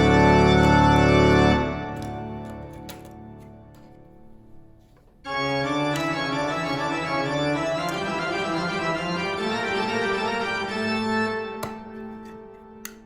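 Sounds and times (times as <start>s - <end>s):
organ-like keyboard chords: 0.0s - 4.4s, 5.2s - 13.0s.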